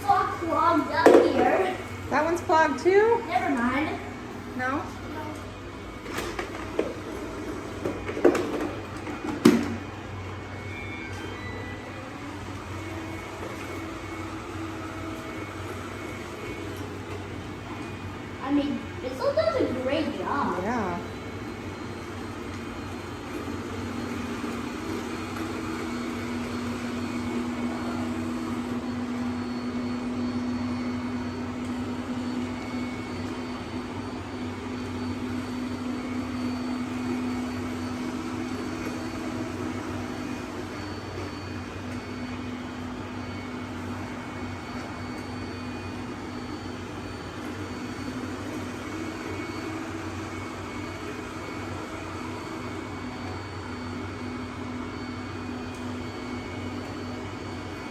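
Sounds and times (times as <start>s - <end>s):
robot vacuum motor hum: 0.0s - 57.9s.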